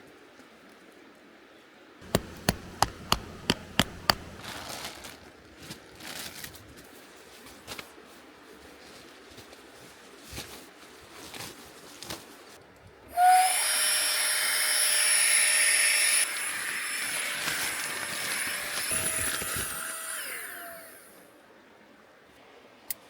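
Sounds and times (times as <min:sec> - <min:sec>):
electric motor blowing air: 0:02.0 - 0:04.4, 0:13.2 - 0:21.2
soft clicks: 0:02.0 - 0:04.4.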